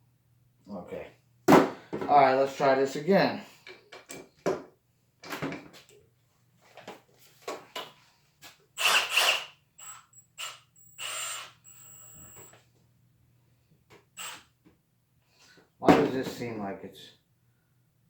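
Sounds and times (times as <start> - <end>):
impact driver bursts: 8.8 - 12.5, 14.2 - 14.5.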